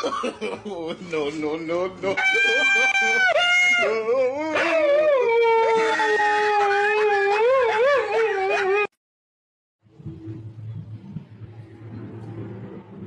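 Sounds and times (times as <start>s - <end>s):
dog howling: 2.8s - 8.9s.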